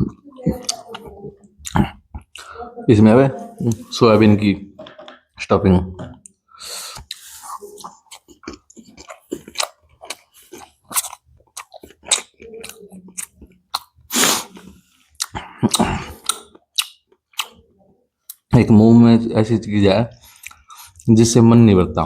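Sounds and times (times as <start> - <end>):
wet chewing mouth clicks: 0.0 - 2.6, 6.2 - 17.7.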